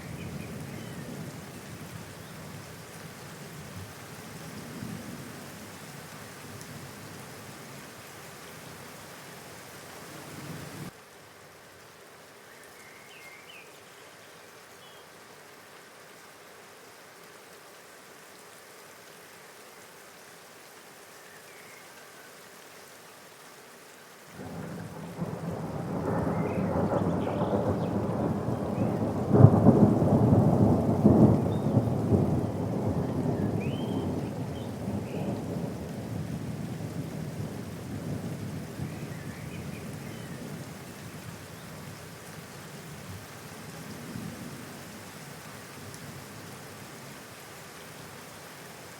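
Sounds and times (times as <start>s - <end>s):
steady rain: 0.0s - 48.9s
thunder rumbling and cracking: 24.4s - 38.6s.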